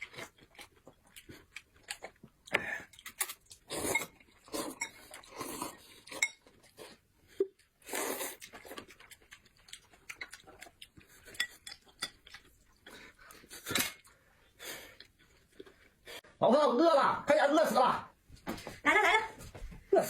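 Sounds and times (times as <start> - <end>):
cutlery and dishes clinking: 11.2 - 12.4.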